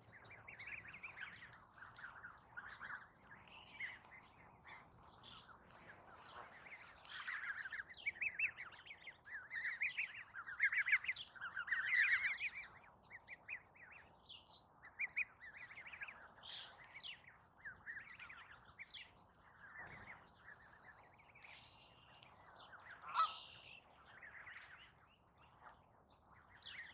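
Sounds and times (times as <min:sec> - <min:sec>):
wild birds chirping: 0:15.0 - 0:24.9.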